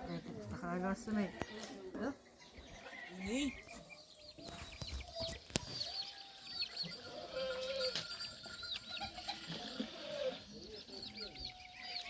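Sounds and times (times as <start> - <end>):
high chirping calls: 2.4 - 12.0
animal bleating: 6.1 - 8.2, 9.0 - 10.5.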